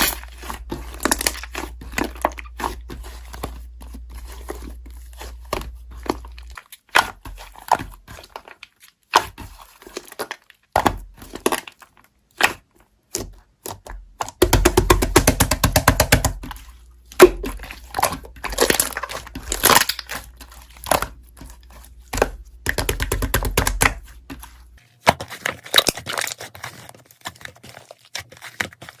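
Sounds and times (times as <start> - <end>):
slime crackling and popping: 17.2 - 24.0.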